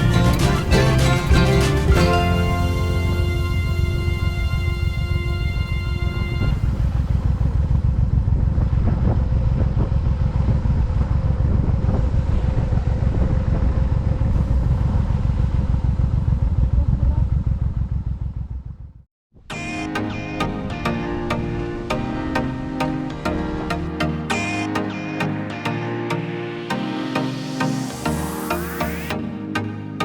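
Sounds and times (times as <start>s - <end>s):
background music: 0.0s - 6.6s, 19.5s - 30.0s
motorcycle engine rumble: 0.0s - 19.1s
road and wind noise: 0.0s - 19.1s.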